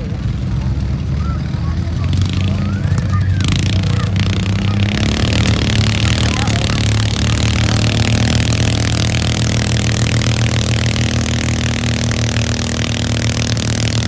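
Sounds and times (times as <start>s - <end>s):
loud engine running: 0.0s - 14.0s.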